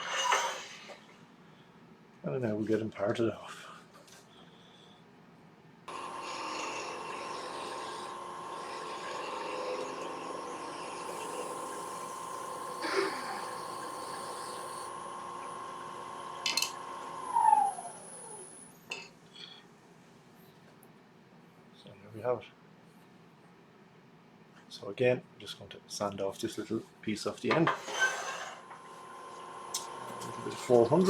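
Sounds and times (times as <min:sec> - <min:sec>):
lathe motor whine: 0:05.9 - 0:18.8, 0:28.6 - 0:31.0.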